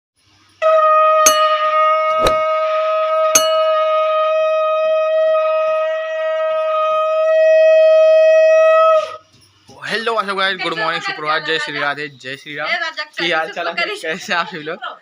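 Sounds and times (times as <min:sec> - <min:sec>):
conch shell blown: 0:00.6 - 0:09.0.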